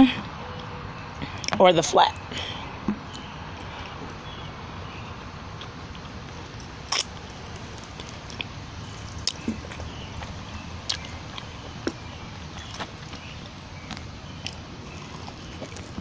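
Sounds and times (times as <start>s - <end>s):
outdoor background hiss: 0.0s - 16.0s
chewing and biting: 5.6s - 16.0s
wet mouth clicks: 6.6s - 9.8s, 10.9s - 11.5s.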